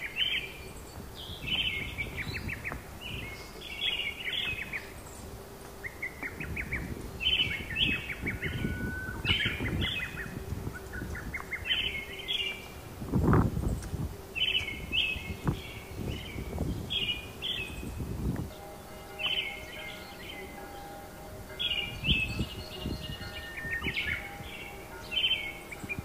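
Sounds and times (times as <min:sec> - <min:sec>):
songbird chirping: 0:00.0 - 0:26.0.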